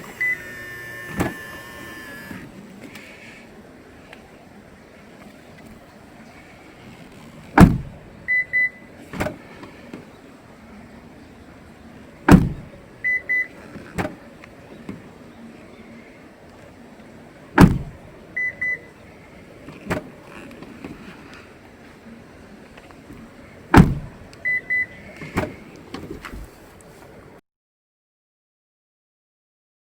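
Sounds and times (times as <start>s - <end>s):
short high beeps: 0.0s - 2.4s
car door shutting: 0.0s - 3.1s, 6.8s - 10.1s, 12.2s - 14.3s, 17.5s - 18.1s, 19.7s - 21.1s, 23.2s - 26.6s.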